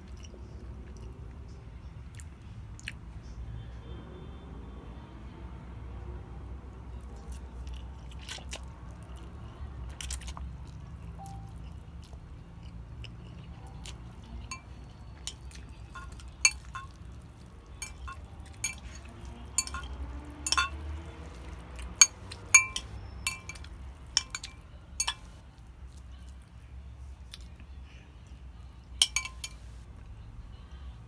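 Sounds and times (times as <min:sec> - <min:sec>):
cutlery clinking on dishes: 0:13.3 - 0:25.4, 0:29.0 - 0:29.8.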